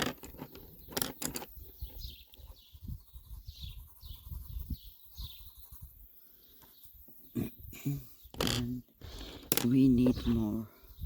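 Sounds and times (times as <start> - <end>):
small songbird chirping: 0.1 - 11.0.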